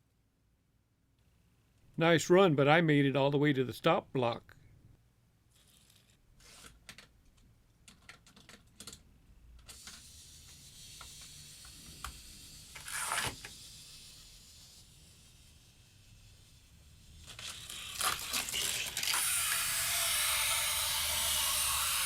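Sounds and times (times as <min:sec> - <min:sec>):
toy car rolling hiss: 0:05.5 - 0:06.8, 0:09.6 - 0:22.0
toy car clicking on plastic track: 0:05.6 - 0:09.0, 0:09.6 - 0:22.0
toy car clatter: 0:07.9 - 0:09.0, 0:09.6 - 0:22.0.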